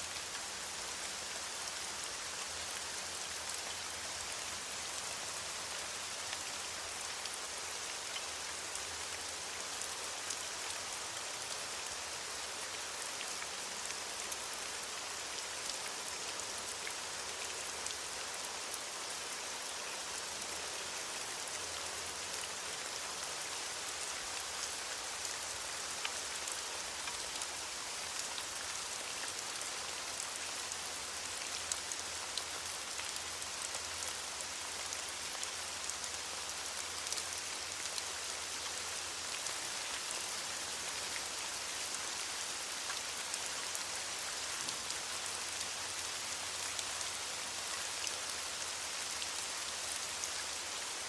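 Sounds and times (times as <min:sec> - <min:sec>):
rain falling on leaves: 0:00.0 - 0:51.0.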